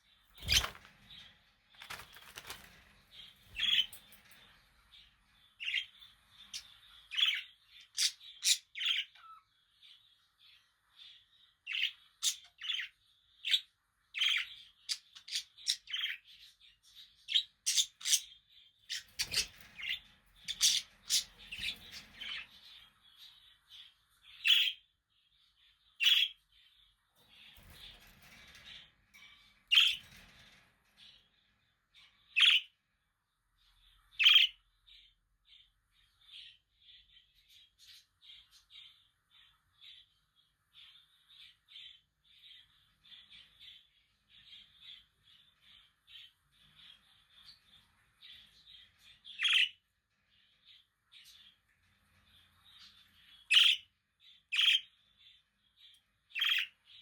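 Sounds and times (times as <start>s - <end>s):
budgerigars chirping: 6.5s - 9.4s, 17.3s - 18.3s, 18.9s - 22.5s, 32.4s - 32.7s, 34.2s - 34.6s, 49.3s - 49.8s, 53.4s - 53.9s, 54.5s - 54.9s, 56.3s - 57.0s.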